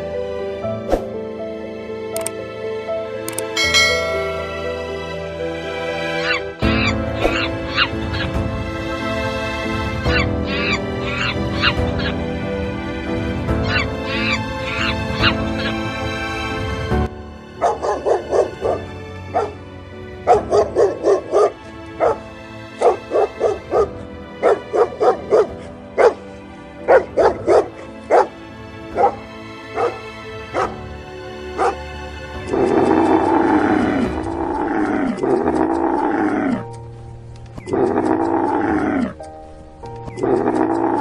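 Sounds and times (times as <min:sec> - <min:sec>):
background music: 0:00.0 - 0:41.0
long falling animal calls: 0:10.0 - 0:12.2, 0:37.6 - 0:39.2.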